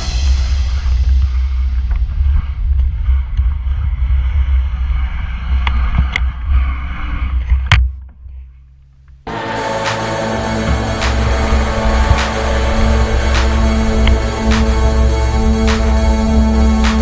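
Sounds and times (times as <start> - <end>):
music: 0.0 - 2.4, 9.3 - 17.0.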